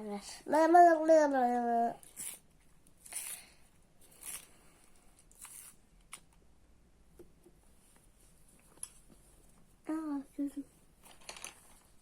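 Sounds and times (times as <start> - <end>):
pencils scraping and rustling: 2.0 - 6.4, 11.0 - 12.0.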